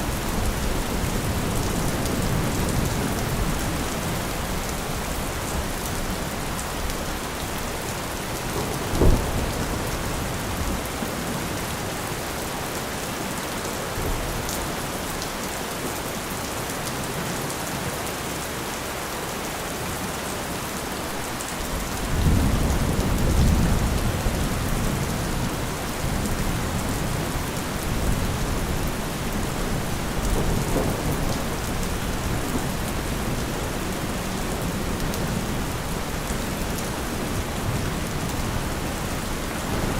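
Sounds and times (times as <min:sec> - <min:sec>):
thunder rumbling: 0:00.0 - 0:12.1, 0:21.0 - 0:39.9
heavy rain: 0:00.0 - 0:39.9.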